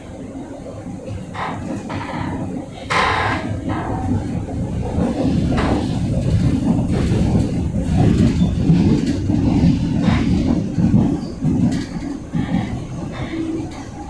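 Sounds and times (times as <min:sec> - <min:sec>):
train wheels rumbling on track: 0:00.0 - 0:14.0
train joint creaking: 0:00.8 - 0:14.0.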